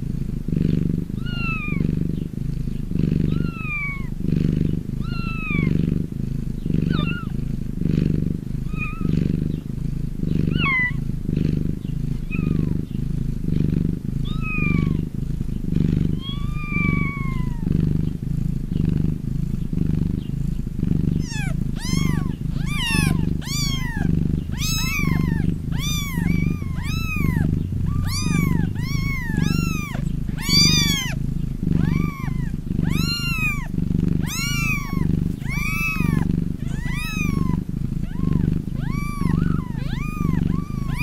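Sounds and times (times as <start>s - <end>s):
cat purring: 0.0s - 41.0s
kitten mewing: 1.1s - 2.0s, 3.2s - 4.2s, 5.0s - 5.9s, 6.8s - 7.4s, 8.6s - 9.2s, 10.4s - 11.1s, 12.2s - 12.8s, 14.2s - 15.1s, 16.1s - 17.8s, 21.1s - 41.0s.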